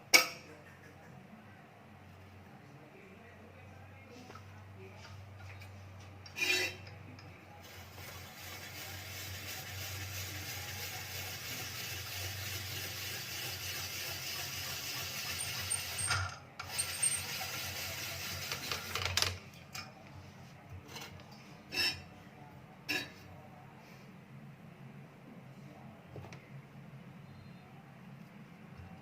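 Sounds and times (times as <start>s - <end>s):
spiral potato cutter grinding: 7.7s - 19.2s.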